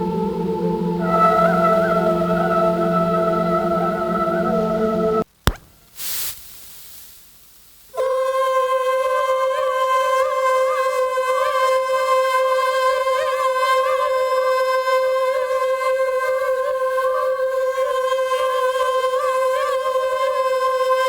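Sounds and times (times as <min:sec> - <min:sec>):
held choir-like synth note: 0:00.0 - 0:05.2.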